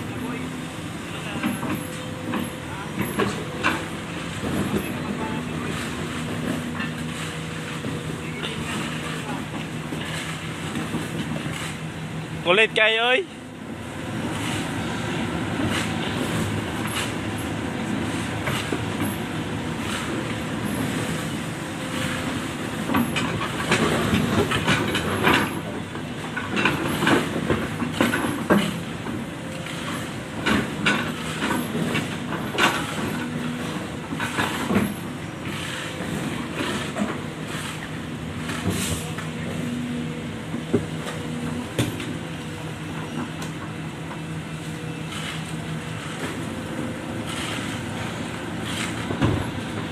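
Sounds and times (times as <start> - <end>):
excavator diesel engine running: 0.0 - 49.9
excavator bucket knocks and clanks: 1.4 - 7.1, 22.8 - 44.3, 48.7 - 49.9.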